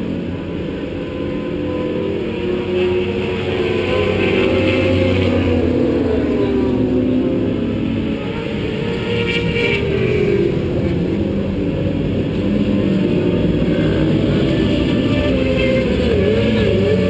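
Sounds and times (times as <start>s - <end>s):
race car engine: 0.0s - 17.0s
wind and road noise: 0.0s - 17.0s.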